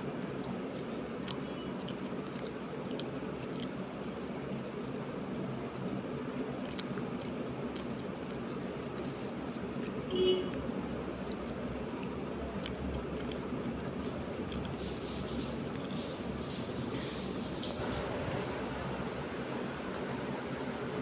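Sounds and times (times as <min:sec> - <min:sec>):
wet mouth clicks: 0:00.0 - 0:15.0
person chewing food: 0:00.0 - 0:16.2
steady background noise: 0:00.0 - 0:21.0.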